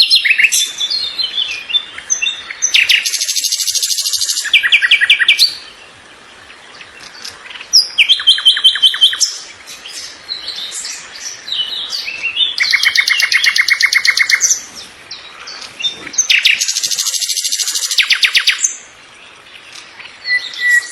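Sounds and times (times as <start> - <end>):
soft bird chirps: 0.0 - 20.9
songbird trilling: 0.0 - 20.9.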